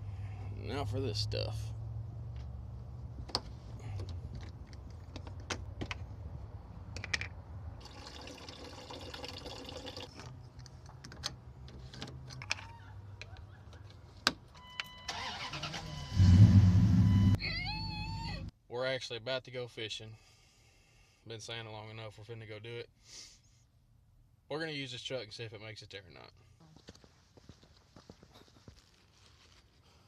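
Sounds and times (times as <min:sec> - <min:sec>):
short electronic tones: 0:14.9 - 0:18.4
truck engine starting: 0:15.0 - 0:18.2
low hum: 0:16.1 - 0:18.5.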